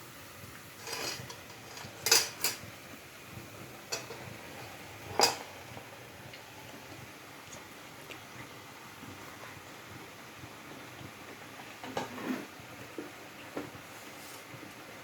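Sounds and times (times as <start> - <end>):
metal utensil clinking on frying pan: 0.8 - 2.6, 3.9 - 4.3.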